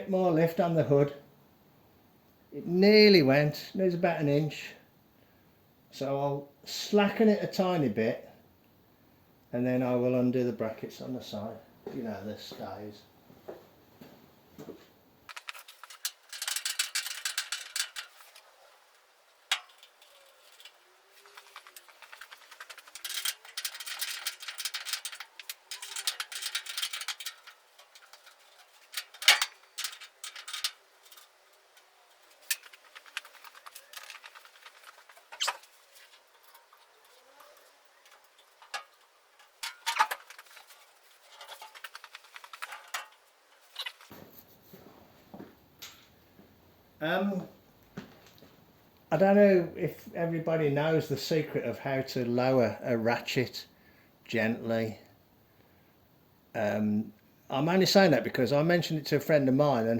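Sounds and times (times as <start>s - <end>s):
sharp metallic clicks and clinks: 15.3s - 44.1s
metal rattling: 15.3s - 44.2s.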